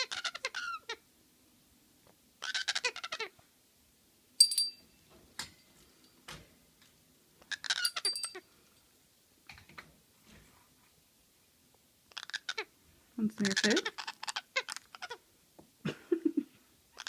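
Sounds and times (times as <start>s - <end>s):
parrot calling: 0.0s - 1.0s, 2.4s - 3.4s, 7.4s - 8.5s, 12.1s - 15.3s.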